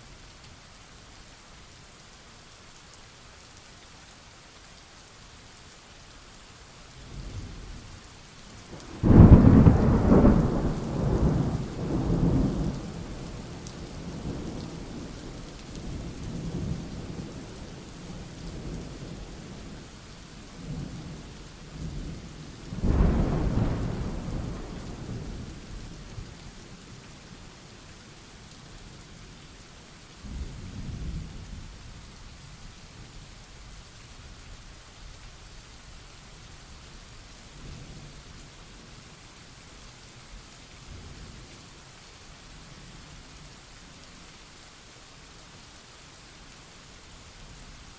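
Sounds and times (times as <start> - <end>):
steady rain hiss: 0.0 - 47.9
thunder rumbling: 8.8 - 15.1, 22.7 - 26.0.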